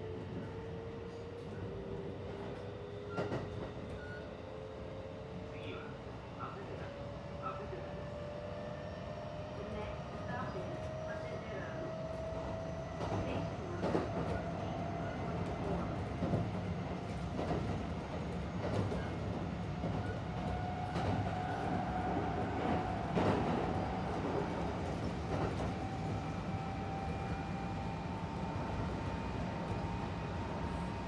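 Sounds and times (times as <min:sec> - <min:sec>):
train rumble: 0:05.5 - 0:31.0.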